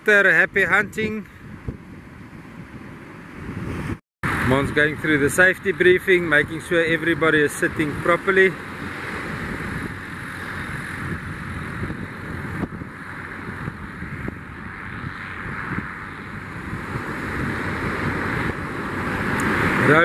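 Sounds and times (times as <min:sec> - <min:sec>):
wind buffeting microphone: 0:00.0 - 0:20.0
surf breaking on beach: 0:02.3 - 0:20.0.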